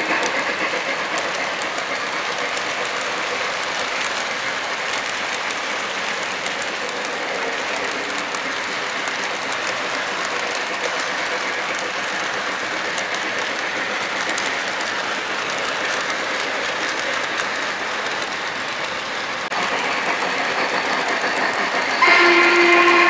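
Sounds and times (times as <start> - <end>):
model train rolling on track: 0.0 - 23.0
loud steam whistle: 21.8 - 23.0.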